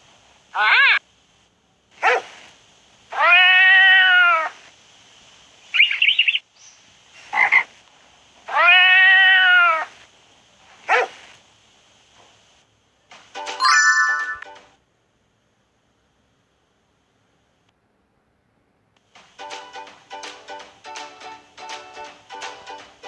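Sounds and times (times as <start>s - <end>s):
animal calling: 0.6s - 1.0s.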